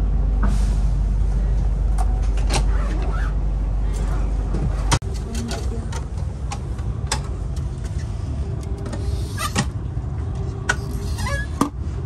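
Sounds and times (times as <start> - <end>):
electric train running rumble: 0.0 - 2.6, 3.4 - 12.0.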